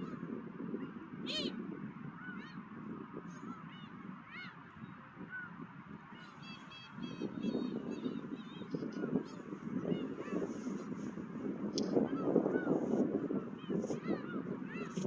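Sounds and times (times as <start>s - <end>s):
low rumble of wind: 0.0s - 15.0s
gulls calling: 0.8s - 1.6s, 2.2s - 10.8s.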